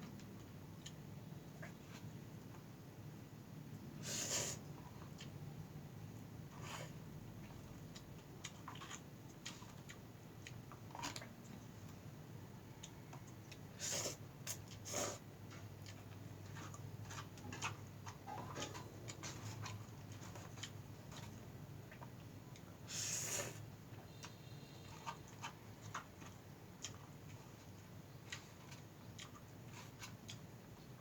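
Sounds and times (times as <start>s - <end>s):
person chewing noodles: 6.5s - 11.3s, 12.7s - 30.6s.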